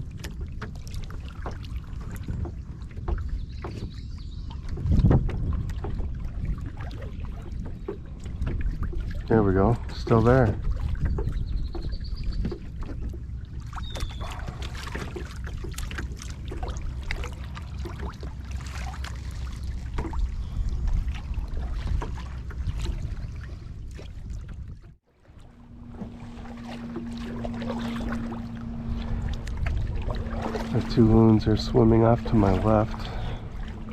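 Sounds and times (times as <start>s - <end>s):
paddle strokes splashing: 0.0s - 33.9s
wind rumble on microphone: 0.0s - 33.9s
steady low hum: 25.1s - 33.9s.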